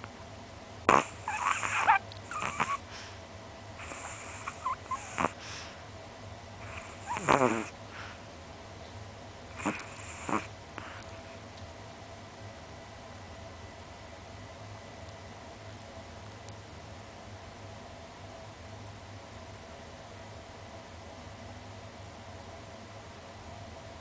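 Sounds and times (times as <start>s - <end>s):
small dog snoring: 0.9s - 3.2s, 3.8s - 5.7s, 6.6s - 8.2s, 9.5s - 11.1s.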